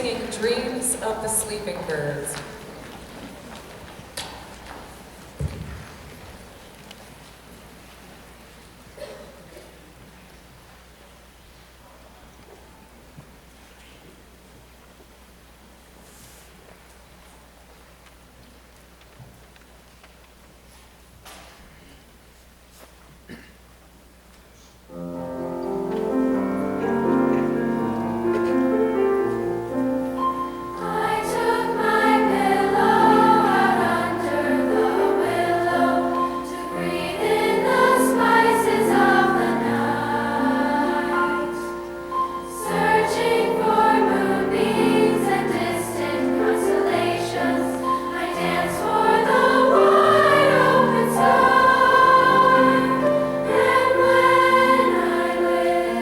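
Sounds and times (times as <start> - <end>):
piano accompaniment: 24.9 - 56.0
girls' choir singing: 26.0 - 56.0.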